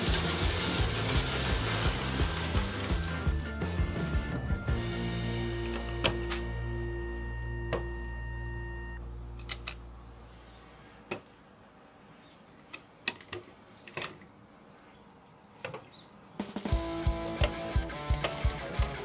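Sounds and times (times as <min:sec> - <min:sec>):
background music: 0:00.0 - 0:09.4, 0:16.4 - 0:19.0.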